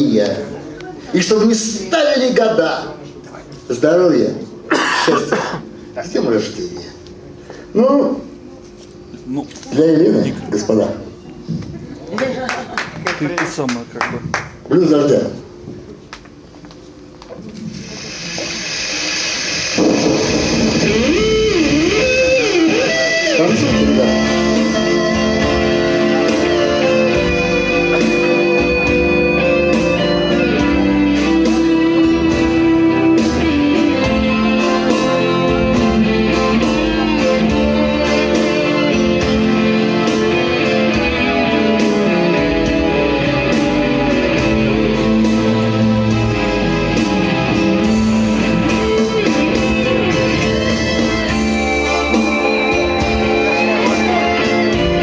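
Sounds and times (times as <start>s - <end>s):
blues guitar playing: 17.8s - 55.0s.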